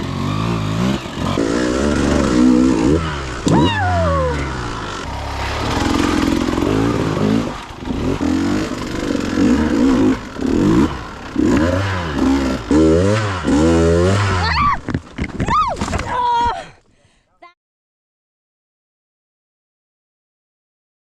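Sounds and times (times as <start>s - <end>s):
dirt bike engine revving: 4.7s - 14.4s.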